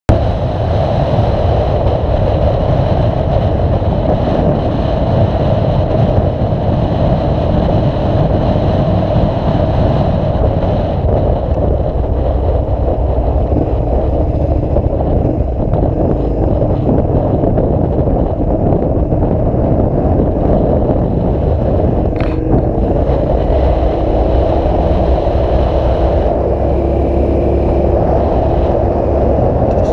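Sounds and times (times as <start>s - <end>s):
vehicle and road noise: 0.1s - 29.9s.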